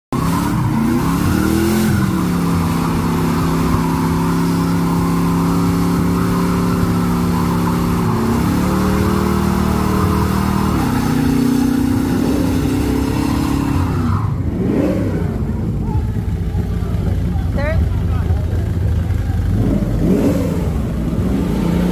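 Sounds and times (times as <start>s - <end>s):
car engine at high revs: 0.1s - 21.9s.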